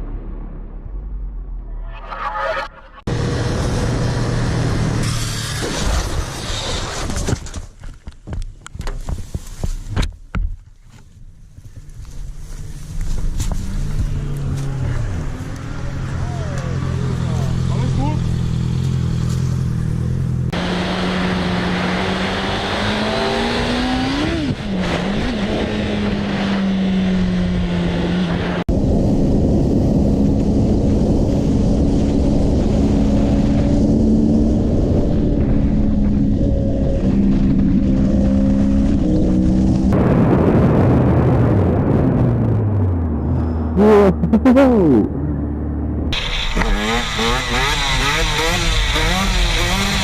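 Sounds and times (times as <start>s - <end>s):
road and wind noise: 0.0s - 50.0s
vehicle engine running: 11.1s - 21.3s
wind rush: 23.5s - 43.8s.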